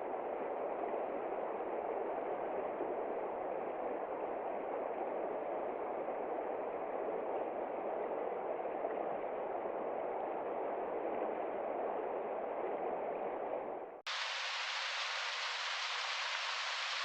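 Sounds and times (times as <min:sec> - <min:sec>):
bright hissy rain: 0:14.1 - 0:17.0
muffled rain on a window: 0:14.1 - 0:17.0.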